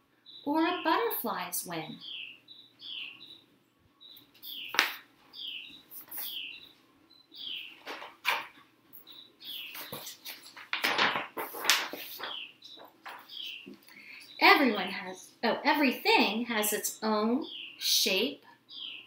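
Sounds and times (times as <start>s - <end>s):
bird chirping: 0.0s - 10.6s, 11.8s - 15.5s, 16.7s - 19.0s
rustling: 4.2s - 6.5s, 7.6s - 14.3s.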